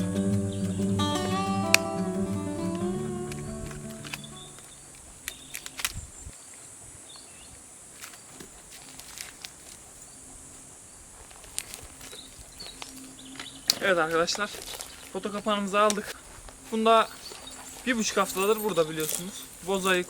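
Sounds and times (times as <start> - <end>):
insect buzz: 0.0 - 18.0
sharp clicks and snaps: 2.7 - 6.0.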